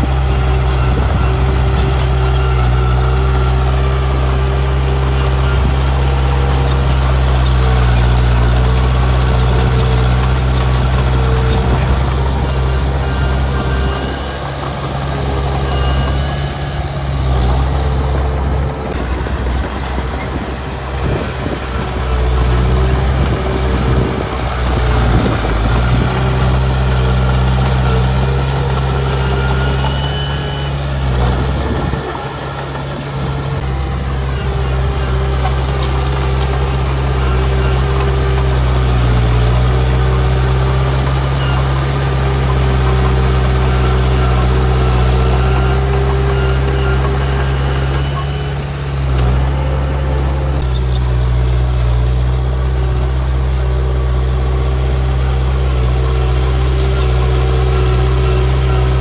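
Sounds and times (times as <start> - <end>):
diesel machinery engine drone: 0.0 - 59.0.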